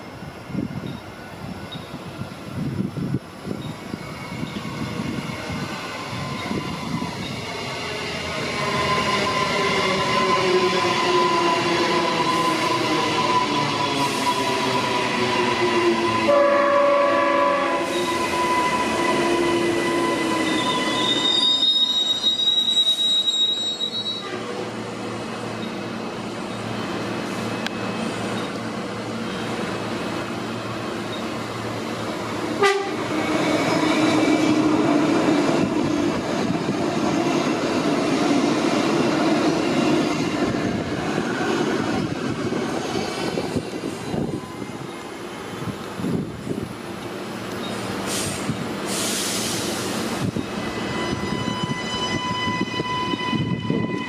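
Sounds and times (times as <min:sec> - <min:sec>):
train rumbling past: 0:00.0 - 0:54.0
train horn blast: 0:15.5 - 0:21.3, 0:24.1 - 0:24.7, 0:32.6 - 0:33.1, 0:50.7 - 0:54.0
wheel squeal: 0:17.9 - 0:24.4.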